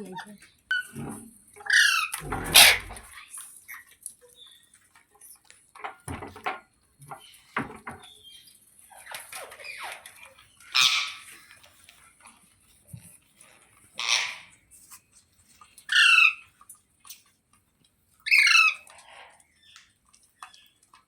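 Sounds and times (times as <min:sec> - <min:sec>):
parrot chirps and calls: 0:01.6 - 0:03.8, 0:08.1 - 0:11.4, 0:14.0 - 0:14.6, 0:15.8 - 0:16.5, 0:18.2 - 0:19.8.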